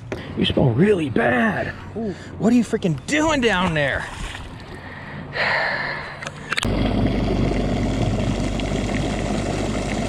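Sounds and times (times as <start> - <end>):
boat motor idling: 6.6 - 10.0.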